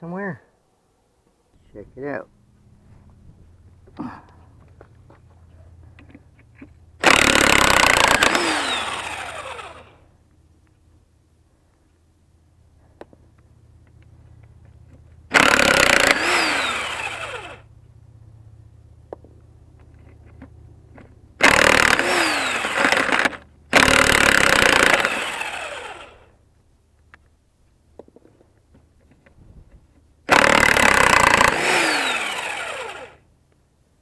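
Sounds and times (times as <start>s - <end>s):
motor winding down: 7.0s - 10.1s, 15.3s - 17.7s, 21.4s - 26.3s, 30.3s - 33.2s.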